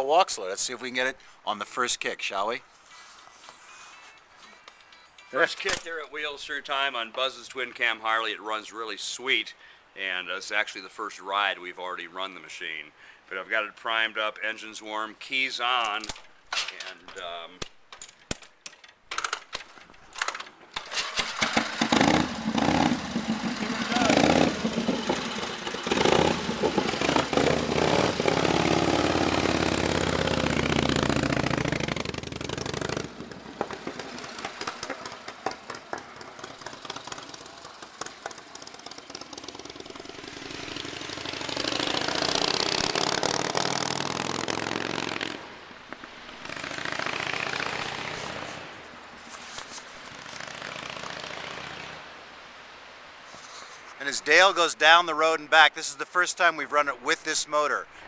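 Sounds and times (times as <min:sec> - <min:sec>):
motorcycle kick-start: 0:17.6 - 0:45.5, 0:46.3 - 0:48.7
motorcycle engine revving: 0:20.8 - 0:48.8, 0:50.1 - 0:52.1.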